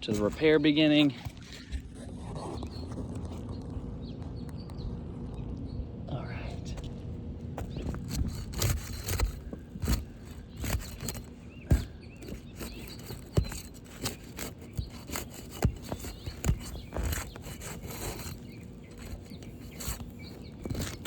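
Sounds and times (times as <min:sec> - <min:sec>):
scraping on roof shingles: 0:00.0 - 0:02.9, 0:07.6 - 0:21.0.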